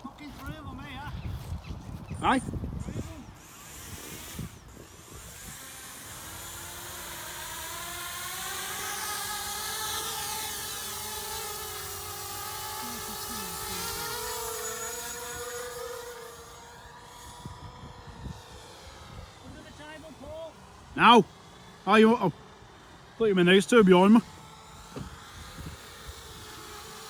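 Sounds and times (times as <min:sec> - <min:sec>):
quadcopter propellers whining: 0:00.0 - 0:27.0.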